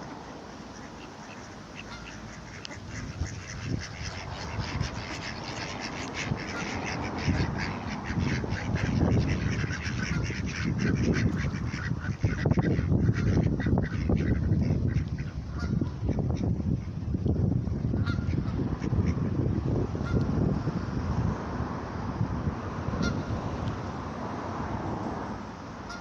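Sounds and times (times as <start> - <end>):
ducks quacking: 0.0 - 17.0, 17.9 - 19.4, 23.0 - 23.3.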